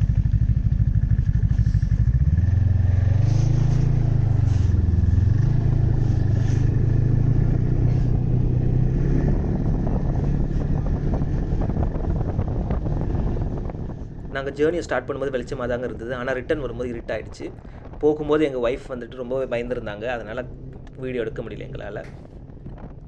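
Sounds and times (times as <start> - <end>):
snowmobile engine pulling away: 0.0 - 14.3.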